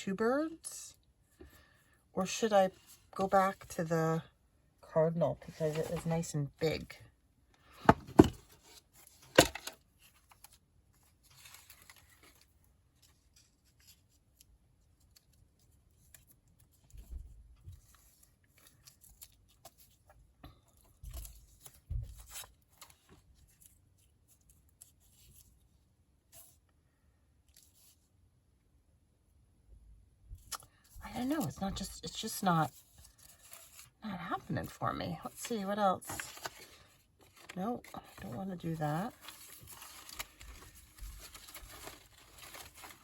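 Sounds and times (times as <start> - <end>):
paper rustling and sliding: 35.4 - 43.0.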